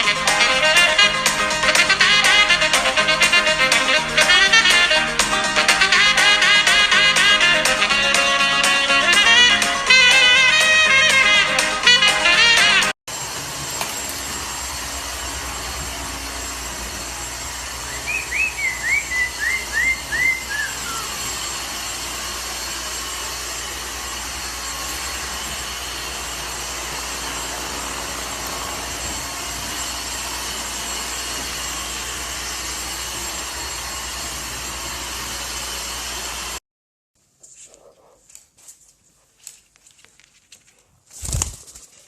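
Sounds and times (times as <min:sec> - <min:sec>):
parrot whistled chirps: 0:17.8 - 0:21.2.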